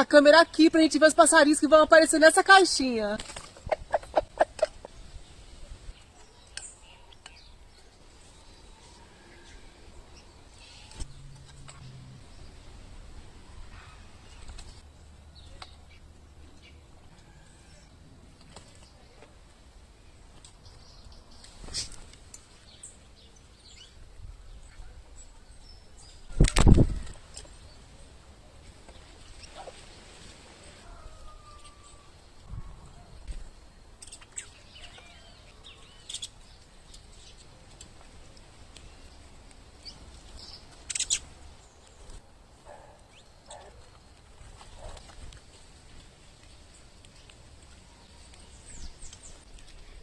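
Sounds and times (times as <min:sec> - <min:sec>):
wings fluttering: 0:03.1 - 0:05.1, 0:13.7 - 0:14.8, 0:26.2 - 0:27.6
small birds chirping: 0:33.9 - 0:44.0, 0:44.7 - 0:50.0.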